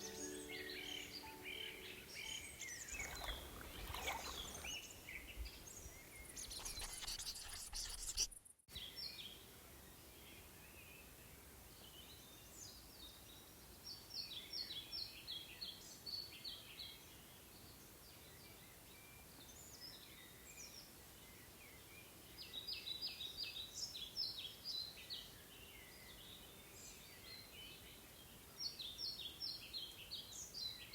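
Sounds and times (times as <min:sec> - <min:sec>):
soft music: 0:00.0 - 0:03.5
songbirds chirping and singing: 0:00.0 - 0:07.0.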